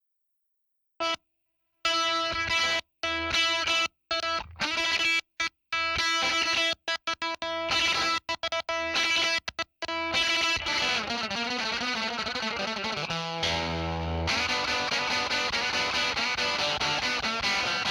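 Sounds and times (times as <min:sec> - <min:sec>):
distorted electric guitar chords: 0:09.9 - 0:17.9.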